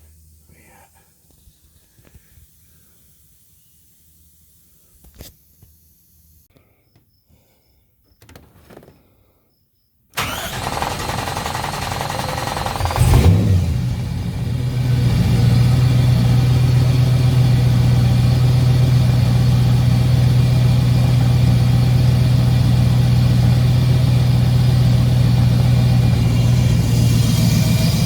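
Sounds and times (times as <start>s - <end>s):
car engine starting and idling: 10.2s - 28.0s.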